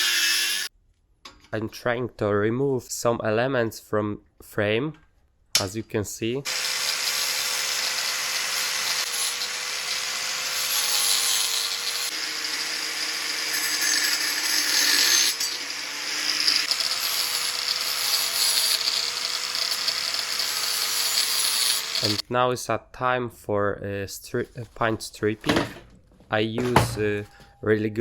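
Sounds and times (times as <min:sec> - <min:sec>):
electric power tool on metal: 0:00.0 - 0:00.7, 0:06.5 - 0:22.2.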